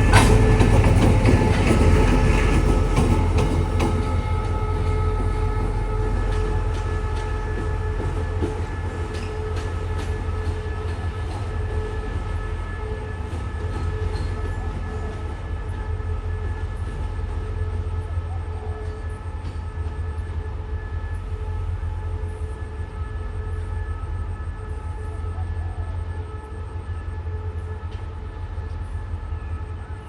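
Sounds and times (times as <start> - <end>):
train wheels clicking on rail joints: 0.0 - 15.9
diesel train engine rumble: 0.0 - 30.0.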